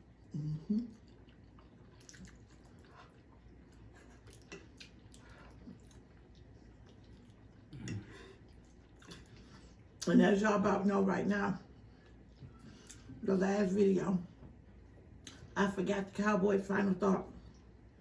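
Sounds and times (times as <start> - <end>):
eating sounds: 0.1 - 9.8.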